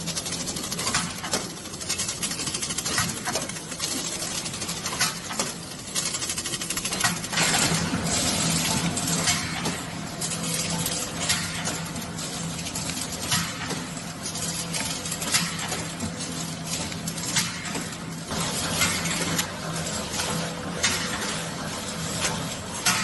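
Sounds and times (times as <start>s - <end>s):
metallic clicking and clattering: 0.0s - 23.0s.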